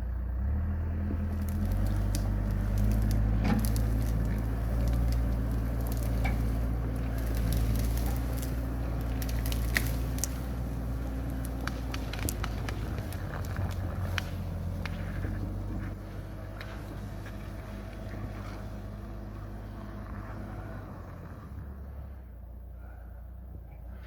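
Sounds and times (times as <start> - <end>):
engine idling with low hum: 0.0 - 24.0
crackling clicks and snaps: 1.3 - 18.2.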